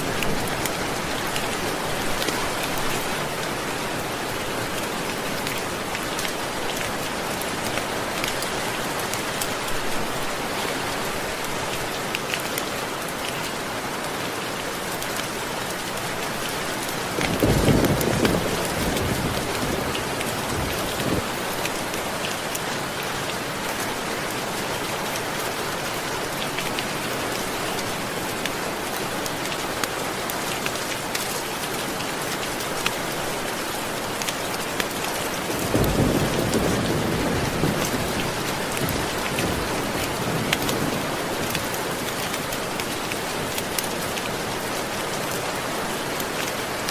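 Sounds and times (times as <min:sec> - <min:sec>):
steady rain: 0:00.0 - 0:46.9
low rumble of thunder: 0:17.2 - 0:21.4, 0:35.5 - 0:41.2.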